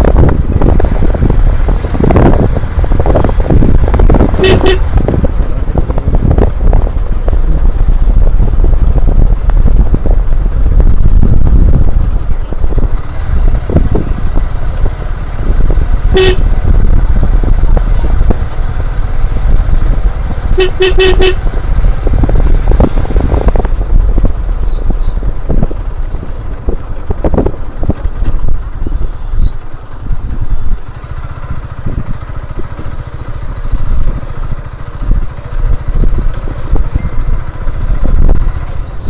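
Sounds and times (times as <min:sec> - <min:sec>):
motorcycle engine rumble: 0:00.0 - 0:39.0
wind buffeting microphone: 0:00.0 - 0:39.0
horn beeping: 0:04.2 - 0:05.1, 0:16.0 - 0:16.9, 0:20.4 - 0:21.6.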